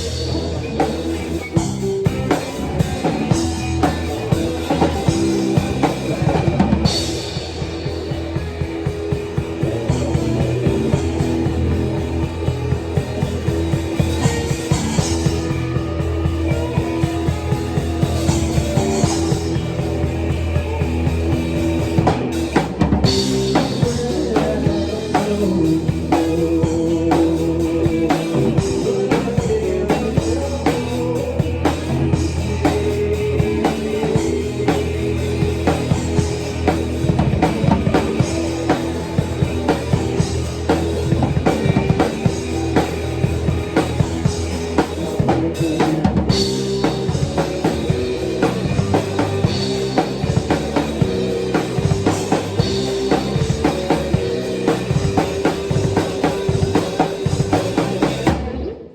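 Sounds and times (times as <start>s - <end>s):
drum kit beat: 0.0s - 58.4s
electric guitar chords: 0.0s - 58.9s
live rock band playing: 0.0s - 58.9s.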